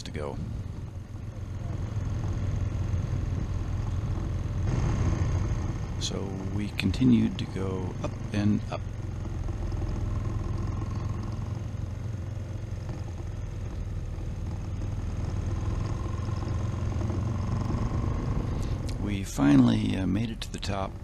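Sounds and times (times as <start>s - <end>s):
motorcycle engine rumbling: 0.0s - 21.0s.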